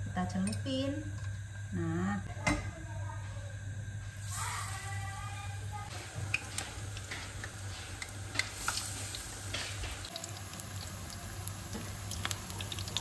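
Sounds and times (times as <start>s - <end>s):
flowers frying in oil: 4.1s - 13.0s
oil crackling and popping: 5.9s - 13.0s.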